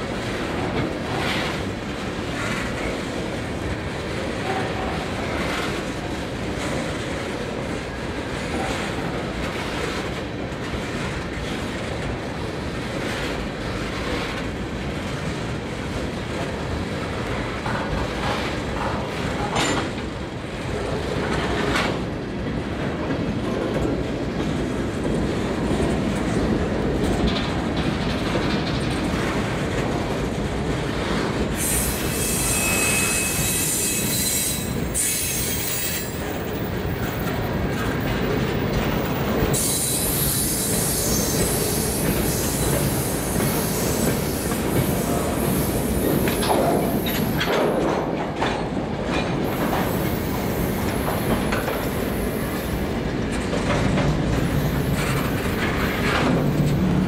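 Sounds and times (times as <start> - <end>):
train wheels clattering on rails: 0.0 - 57.0
high wheel squeal: 31.6 - 36.2.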